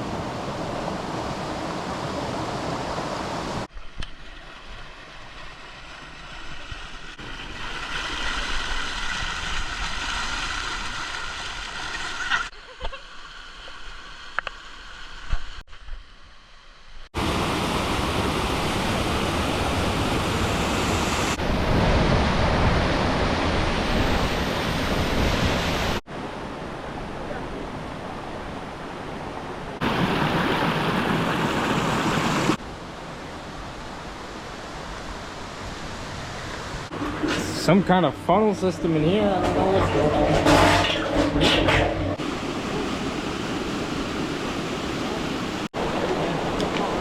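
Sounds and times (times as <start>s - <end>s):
waterfall rushing: 29.8s - 32.6s, 42.2s - 47.0s.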